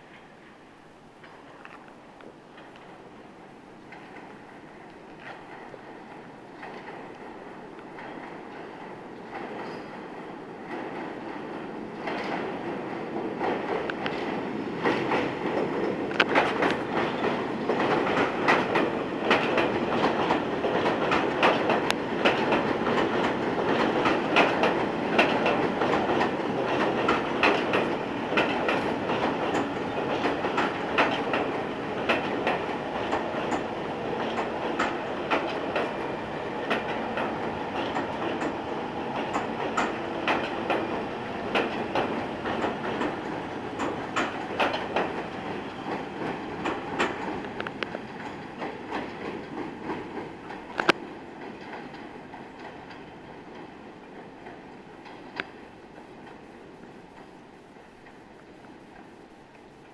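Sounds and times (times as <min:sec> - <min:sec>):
subway train rumbling: 0:00.0 - 0:59.9
wheels clacking over rail joints: 0:05.1 - 0:58.2.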